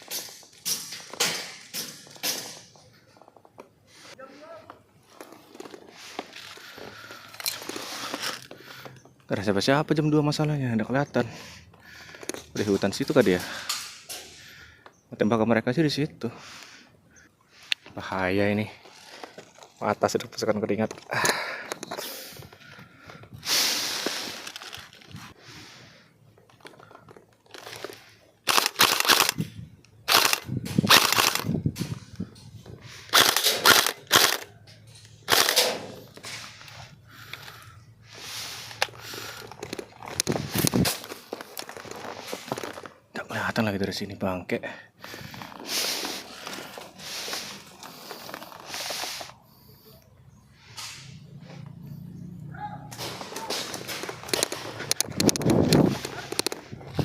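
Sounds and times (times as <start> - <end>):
heavy breathing: 3.9 - 9.2, 11.2 - 12.6, 13.4 - 15.1, 16.3 - 18.0, 21.1 - 28.4, 36.0 - 42.7, 44.6 - 52.4
airsoft guns firing: 28.5 - 29.4, 30.1 - 31.5, 33.1 - 34.5, 35.3 - 35.9.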